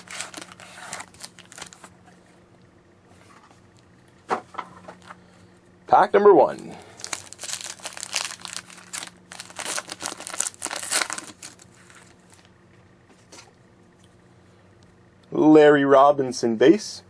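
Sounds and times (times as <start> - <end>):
wrapper crinkling and tearing: 0.0 - 1.9, 7.0 - 12.5.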